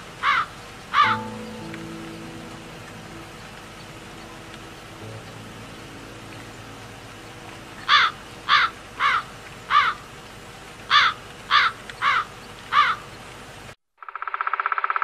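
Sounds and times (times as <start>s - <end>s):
crow cawing: 0.2s - 1.3s, 7.9s - 10.0s, 10.9s - 13.0s.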